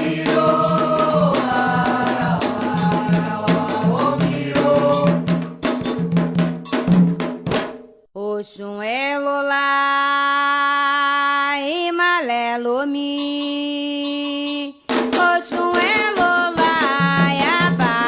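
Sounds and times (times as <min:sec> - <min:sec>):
chanting: 0:00.0 - 0:05.2
ritual drums and percussion: 0:00.0 - 0:08.1, 0:13.0 - 0:18.0.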